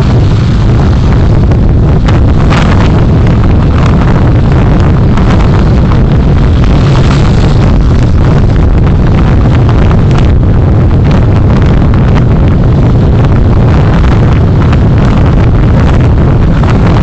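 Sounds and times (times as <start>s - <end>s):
moving vehicle rumble: 0.0s - 17.0s
wind buffeting microphone: 0.0s - 17.0s.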